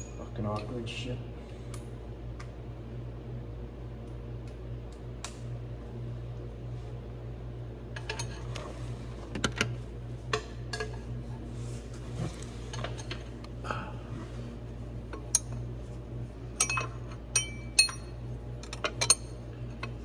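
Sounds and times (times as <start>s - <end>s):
steady low hum: 0.0s - 20.0s
metal tools clinking on bolts: 16.6s - 20.0s.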